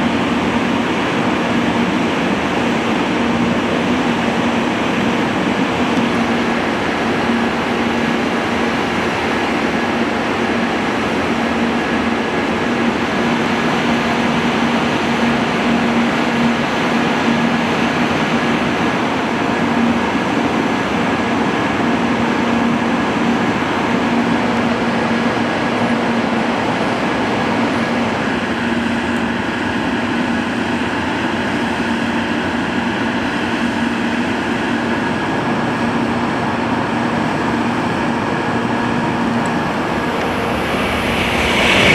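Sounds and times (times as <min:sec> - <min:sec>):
train hum and whir: 0:00.0 - 0:41.9.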